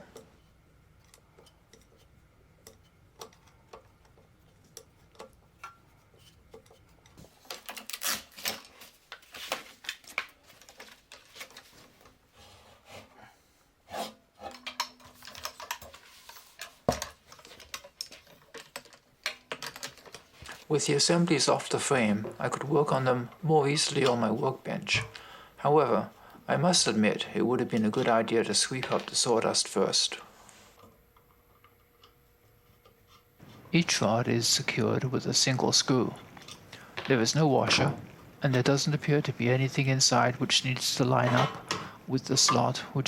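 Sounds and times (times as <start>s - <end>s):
screwdriver clicking and clattering: 14.5s - 16.0s, 16.6s - 20.4s.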